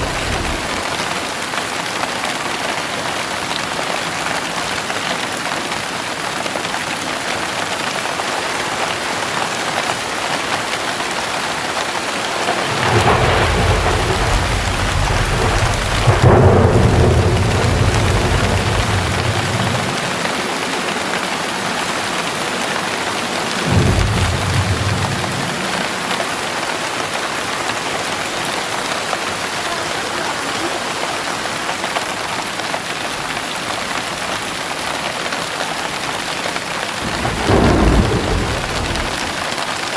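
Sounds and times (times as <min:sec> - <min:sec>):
thunder rumbling: 0:00.0 - 0:01.6, 0:12.3 - 0:20.8, 0:23.5 - 0:26.6, 0:36.8 - 0:39.6
heavy rain falling: 0:00.0 - 0:39.9.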